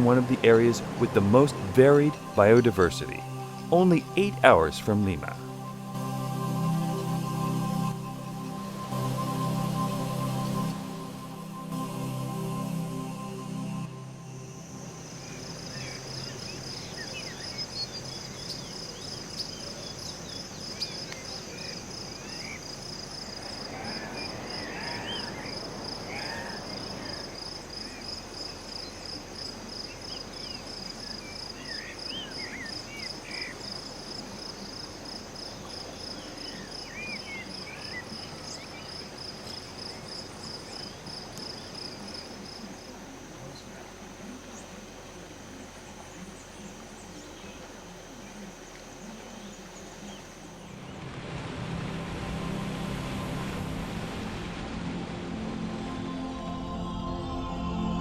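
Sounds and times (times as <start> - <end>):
insect pulsed trill: 0.0 - 4.5, 5.2 - 38.0
forest birds chirping: 0.0 - 58.0.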